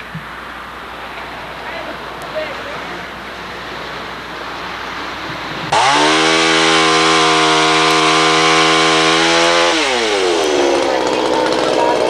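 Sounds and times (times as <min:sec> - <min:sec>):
chainsaw revving: 0:05.7 - 0:12.0.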